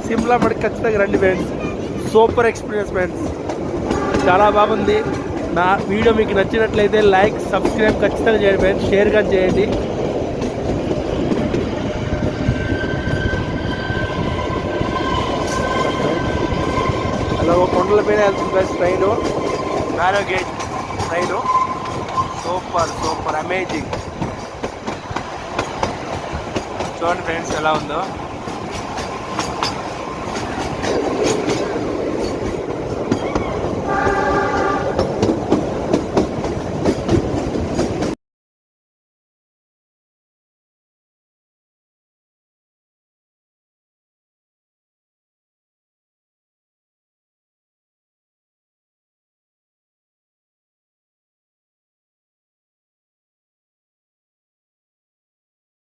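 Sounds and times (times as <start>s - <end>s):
train wheels rumbling on track: 0.0s - 38.2s
train horn: 3.8s - 5.4s, 33.8s - 35.0s
high-pitched squeal: 12.2s - 23.4s.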